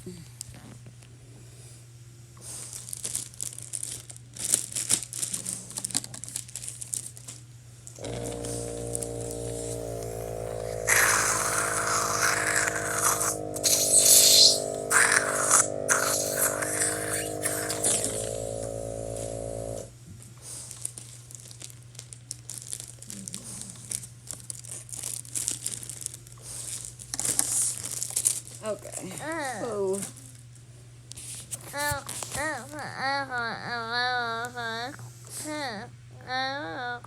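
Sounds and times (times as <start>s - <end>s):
plastic packaging crinkling and tearing: 2.6s - 7.4s, 20.6s - 28.6s
steady electronic tone: 8.0s - 19.9s.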